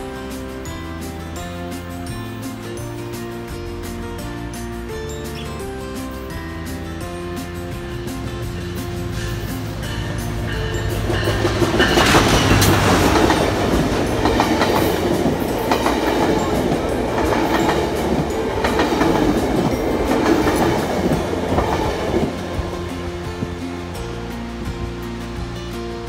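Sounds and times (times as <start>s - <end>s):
diesel locomotive roaring past: 0.0s - 26.0s
clickety-clack of train wheels: 7.4s - 25.5s.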